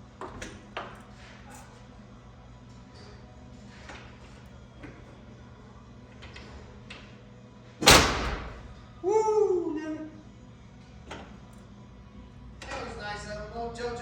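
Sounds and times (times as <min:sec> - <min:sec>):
loud ringing bang: 0:07.8 - 0:08.8
person shouting woo: 0:09.0 - 0:10.1.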